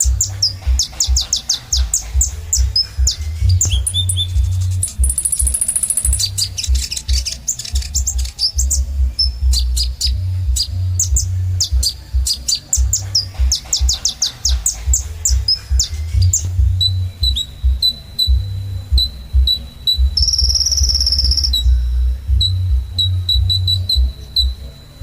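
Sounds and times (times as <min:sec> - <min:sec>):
buzzy high trill: 0:00.0 - 0:13.7
low pulsing thud: 0:00.0 - 0:24.6
bird chirping: 0:00.0 - 0:25.0.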